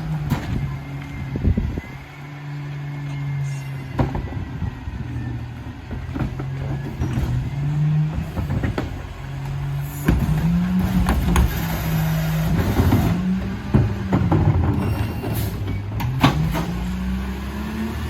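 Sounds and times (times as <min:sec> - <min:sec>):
garbage truck engine running: 0:00.0 - 0:18.0
knocks and clanks: 0:03.9 - 0:04.7, 0:05.8 - 0:17.2.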